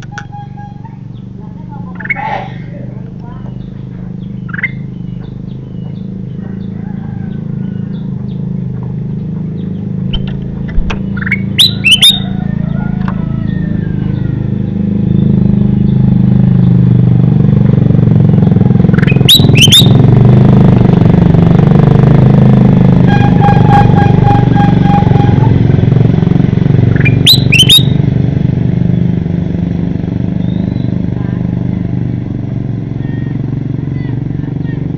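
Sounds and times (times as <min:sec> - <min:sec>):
engine humming: 0:00.0 - 0:34.9
bird sharp sweeping calls: 0:10.8 - 0:12.4, 0:18.9 - 0:20.0, 0:26.9 - 0:28.0
brief pulsing tone: 0:23.1 - 0:25.7.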